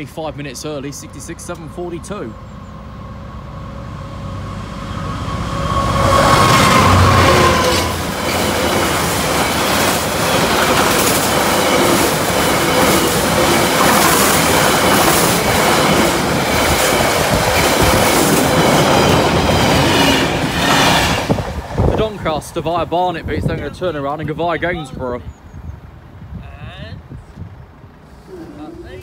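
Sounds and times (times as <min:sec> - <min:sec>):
wheel and track rush: 0:00.0 - 0:24.6
faint ringing from rails: 0:00.4 - 0:18.0
wheels clattering over rails: 0:06.3 - 0:22.2.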